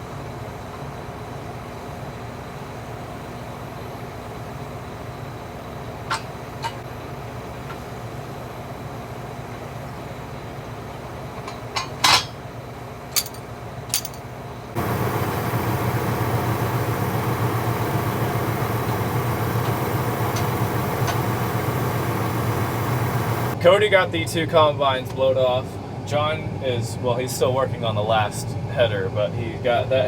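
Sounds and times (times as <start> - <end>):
sharp metal clinks: 13.2 - 14.2
engine running: 14.8 - 23.6.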